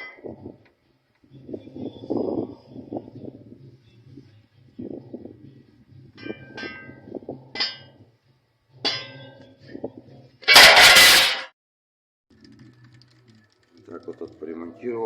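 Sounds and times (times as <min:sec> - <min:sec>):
ringing metallic clanks on steel: 0:06.2 - 0:08.0, 0:08.8 - 0:09.5.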